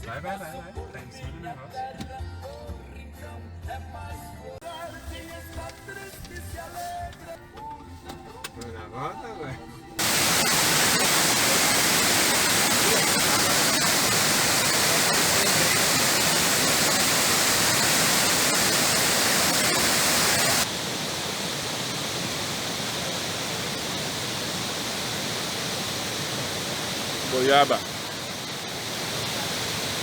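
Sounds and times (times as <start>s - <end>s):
waterfall rushing: 10.0s - 30.0s.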